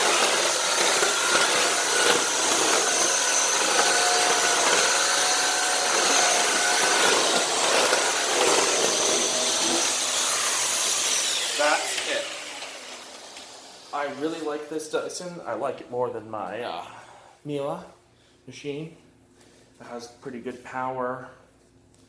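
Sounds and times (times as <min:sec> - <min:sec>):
vacuum floor tool on tile: 0:00.0 - 0:14.5
vacuum cleaner running: 0:00.0 - 0:14.7.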